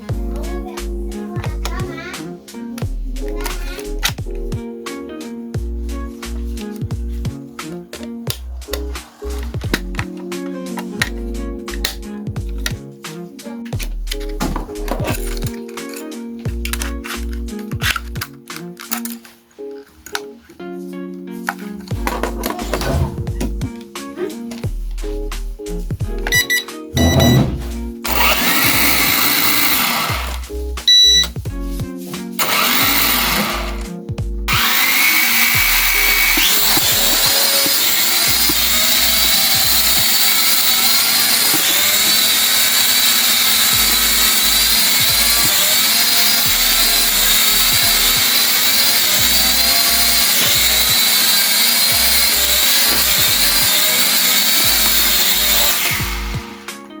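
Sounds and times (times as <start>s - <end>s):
background music: 0.0s - 57.0s
toy drone motors whining: 26.3s - 31.3s, 32.4s - 33.9s, 34.5s - 56.7s.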